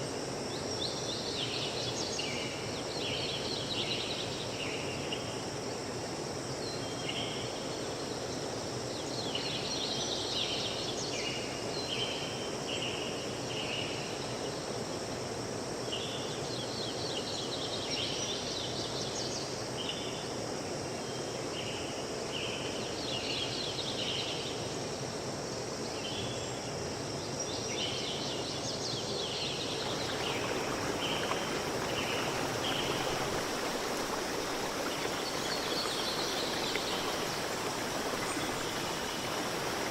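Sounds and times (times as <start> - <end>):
flowing water rushing: 29.5 - 39.9.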